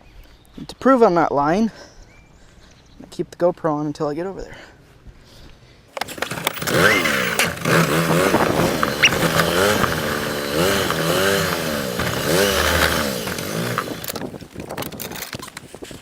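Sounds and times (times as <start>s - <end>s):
golf cart motor: 6.0s - 14.4s.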